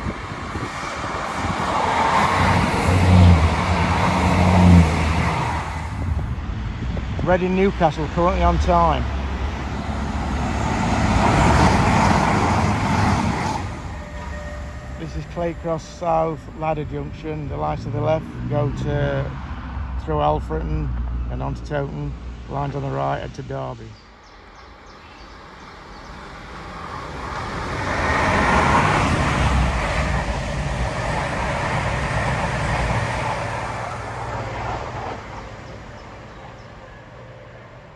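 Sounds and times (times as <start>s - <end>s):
train passing at speed: 0.0s - 37.9s.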